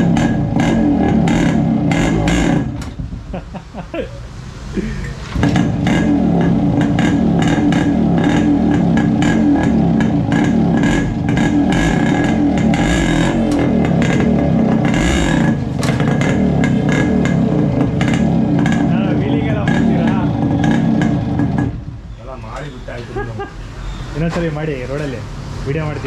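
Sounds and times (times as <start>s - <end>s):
two-stroke motorcycle engine: 0.0s - 3.4s, 5.3s - 22.1s.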